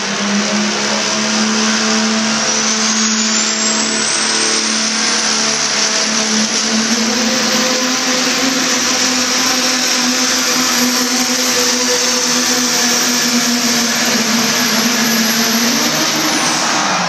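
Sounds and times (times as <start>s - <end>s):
engine droning under load: 0.0s - 17.0s.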